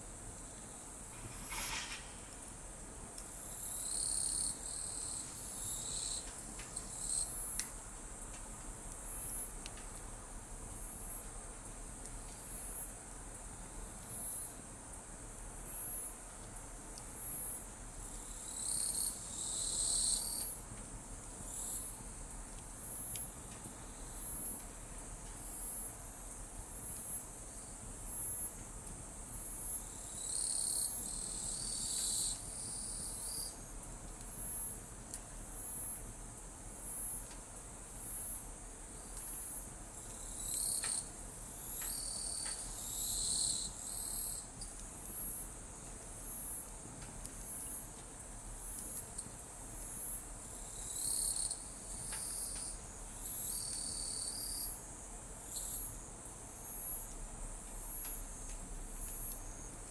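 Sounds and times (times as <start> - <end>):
bonfire crackles: 0.0 - 30.3, 30.9 - 50.9, 51.5 - 53.9
insect high chirp: 3.4 - 6.2, 6.8 - 7.6, 18.2 - 20.6, 29.2 - 33.8, 37.9 - 46.7, 48.6 - 59.9.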